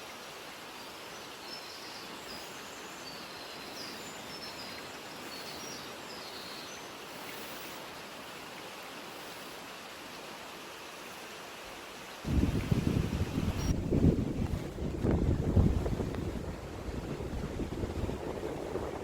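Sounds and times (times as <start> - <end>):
small birds chirping faintly: 0.0 - 12.2.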